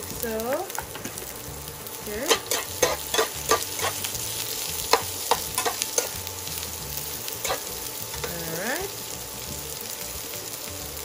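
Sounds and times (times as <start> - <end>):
cabbage sizzling in oil: 0.0 - 11.0
spatula scraping a pan: 2.2 - 6.2, 7.3 - 8.5.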